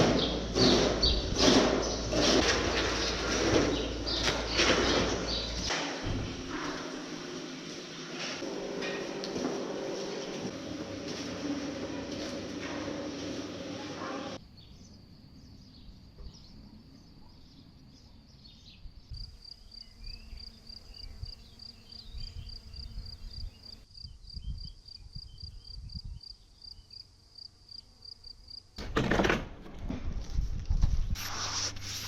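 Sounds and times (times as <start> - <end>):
loud rubbing scraping noise: 0.0 - 5.7, 31.1 - 32.0
cricket chirping: 14.4 - 28.7.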